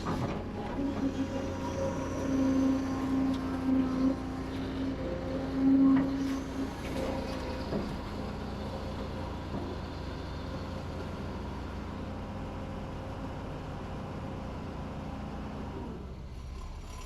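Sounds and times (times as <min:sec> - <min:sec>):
construction machinery diesel engine: 0:00.0 - 0:17.0.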